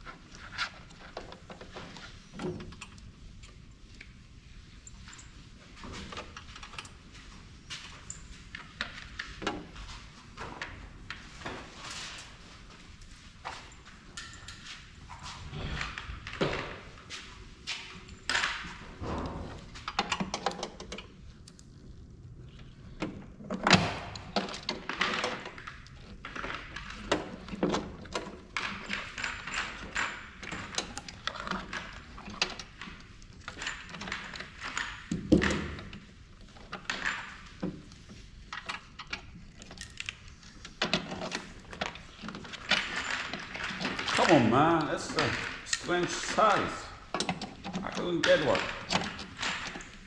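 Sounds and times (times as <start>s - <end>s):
metal tools clinking: 13.5s - 16.0s, 28.6s - 32.8s, 40.8s - 50.0s.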